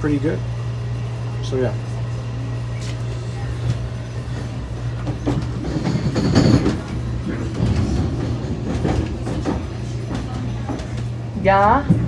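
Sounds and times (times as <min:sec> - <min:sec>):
train low rumble: 0:00.0 - 0:12.0
wheel clatter: 0:03.7 - 0:12.0.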